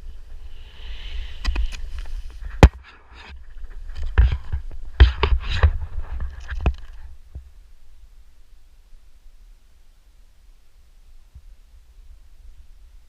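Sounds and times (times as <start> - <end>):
wind rumble on microphone: 0.0 - 7.6.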